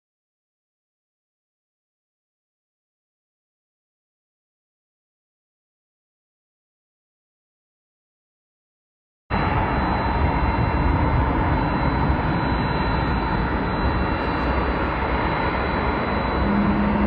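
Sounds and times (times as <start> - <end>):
jet engines roaring at takeoff: 9.3 - 17.0
low steady hum: 9.3 - 17.0.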